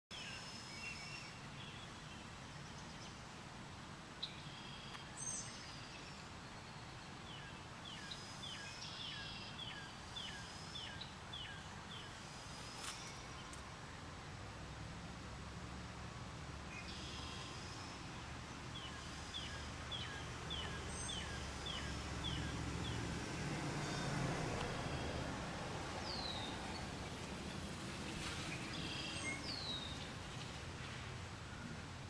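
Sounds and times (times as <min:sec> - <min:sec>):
steady outdoor hiss: 0:00.1 - 0:32.0
thin whistled bird calls: 0:04.2 - 0:13.5, 0:16.7 - 0:18.0, 0:28.5 - 0:30.1.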